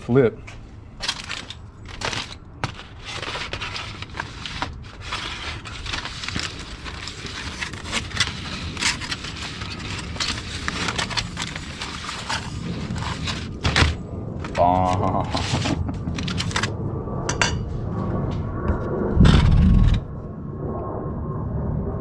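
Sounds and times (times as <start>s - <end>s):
aluminium foil crinkling: 1.0s - 16.7s.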